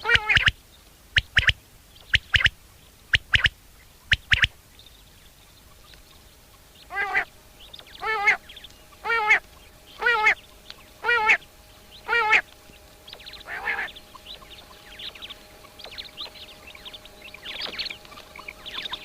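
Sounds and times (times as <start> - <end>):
small birds chirping faintly: 0.0 - 19.0
bird nasal wavering call: 5.7 - 19.0.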